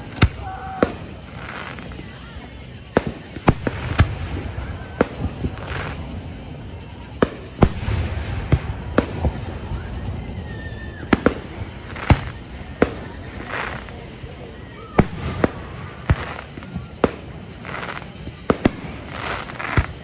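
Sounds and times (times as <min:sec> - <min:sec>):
fireworks bangs: 0:00.0 - 0:20.0.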